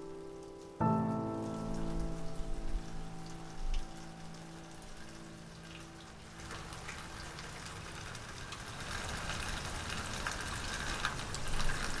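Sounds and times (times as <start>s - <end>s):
rain pattering: 0.0s - 12.0s
raindrops ticking: 0.0s - 12.0s.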